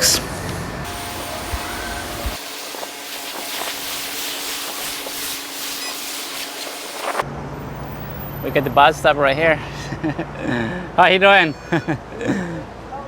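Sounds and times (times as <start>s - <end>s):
pressure washer water jet hiss: 0.0s - 7.2s.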